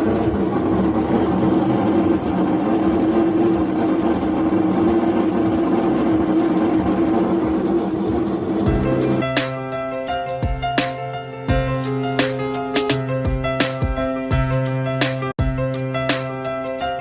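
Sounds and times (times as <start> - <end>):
washing machine drain pump running: 0.0 - 11.1.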